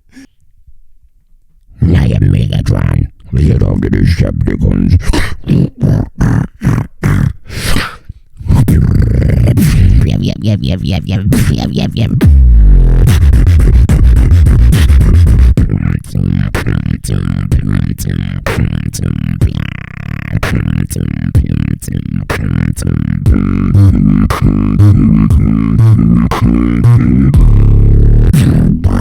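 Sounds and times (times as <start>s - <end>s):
beatboxed deep bass: 1.8s - 29.0s
beatboxing snare and hi-hat clicks: 11.2s - 29.0s.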